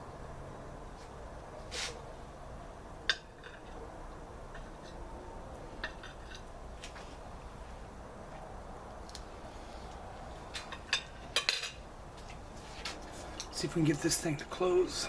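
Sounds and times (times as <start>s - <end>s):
metal utensils clinking on griddle: 10.6s - 11.8s.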